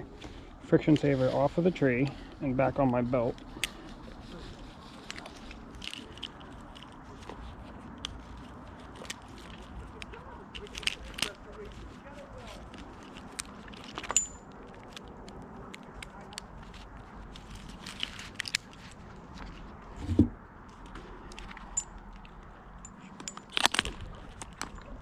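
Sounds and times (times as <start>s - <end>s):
metal carabiners clinking: 12.4s - 15.0s, 21.3s - 24.9s
dull thump: 20.0s - 20.4s.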